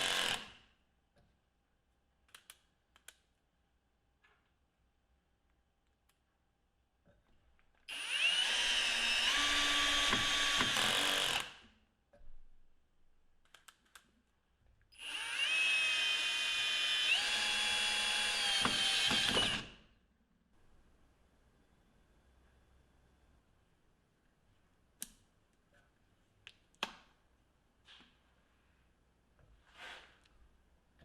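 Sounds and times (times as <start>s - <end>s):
small clicks: 2.2s - 3.3s, 13.4s - 14.2s
cordless drill motor whining: 7.9s - 11.4s, 15.0s - 19.6s.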